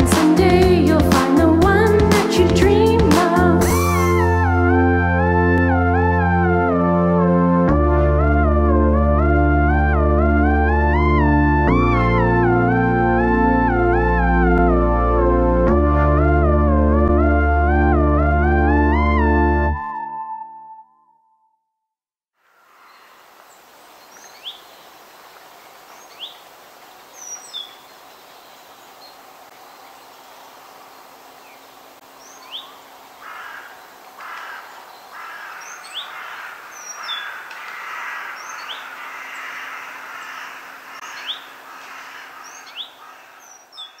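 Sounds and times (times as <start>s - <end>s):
background hiss: 22.4s - 37.8s.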